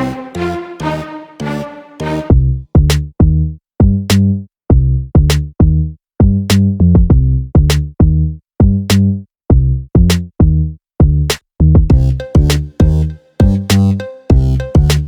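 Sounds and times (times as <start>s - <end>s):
electronic music with drum-machine beat: 11.9s - 15.0s.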